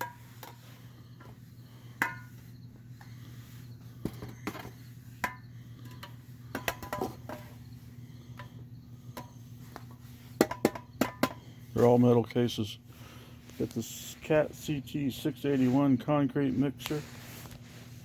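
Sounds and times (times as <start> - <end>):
steady low hum: 0.0 - 18.0
metal cases clicking and tapping: 4.0 - 7.5.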